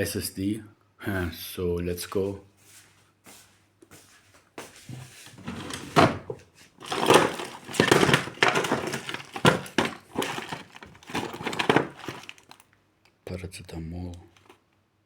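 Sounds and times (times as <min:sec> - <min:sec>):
objects rustling and knocking: 0:04.8 - 0:12.7.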